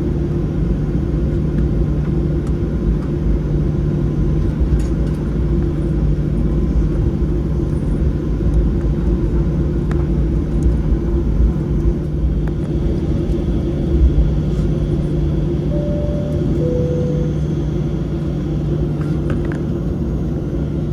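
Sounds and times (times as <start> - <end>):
jet engine cabin roar: 12.1 - 20.9
short chime tone: 15.7 - 18.0.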